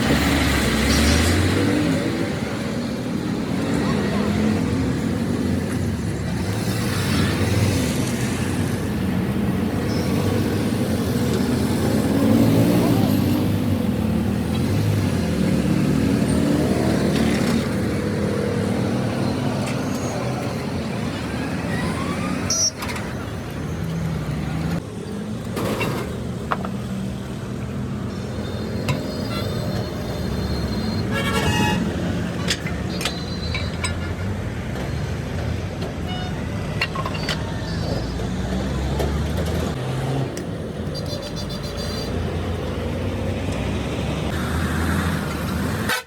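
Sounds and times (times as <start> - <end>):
motor vehicle running: 0.0 - 46.0
people's voices: 1.4 - 6.4, 17.3 - 25.9.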